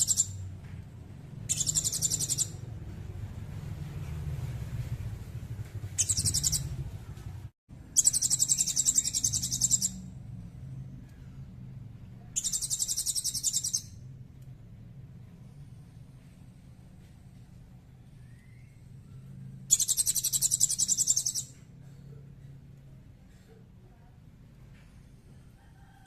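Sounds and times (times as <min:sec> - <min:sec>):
high-pitched bird trills: 0:00.0 - 0:00.4, 0:01.5 - 0:02.6, 0:06.0 - 0:06.8, 0:08.0 - 0:10.1, 0:12.4 - 0:14.0, 0:18.3 - 0:21.6.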